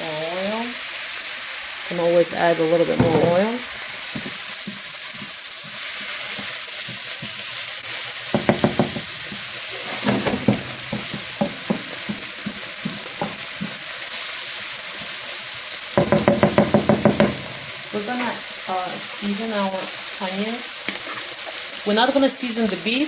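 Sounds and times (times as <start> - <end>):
onions sizzling in oil: 0.0 - 23.0
utensil scraping pan: 2.5 - 18.4.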